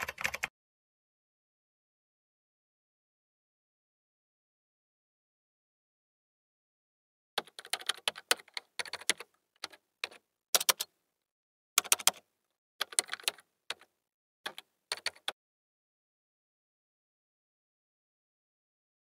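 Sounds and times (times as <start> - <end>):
keyboard typing clicks: 0.0 - 0.5, 7.4 - 10.9, 11.8 - 13.9, 14.5 - 15.4.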